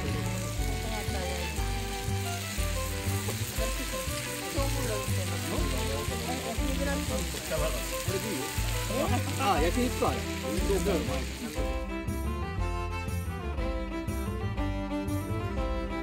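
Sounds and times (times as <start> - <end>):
meat sizzling: 0.0 - 12.2
background music with bass line: 0.0 - 16.0.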